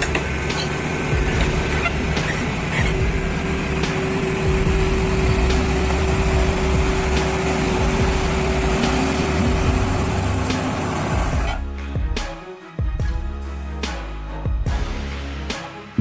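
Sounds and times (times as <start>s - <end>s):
vehicle engine running: 0.0s - 11.4s
heavy rumbling noise: 0.0s - 11.6s.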